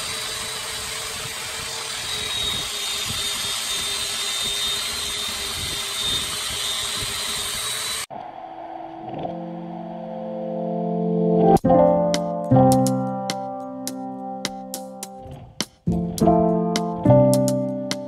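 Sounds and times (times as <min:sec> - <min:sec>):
woodworking power tool running: 0:00.0 - 0:08.1
background keyboard music: 0:09.2 - 0:18.0.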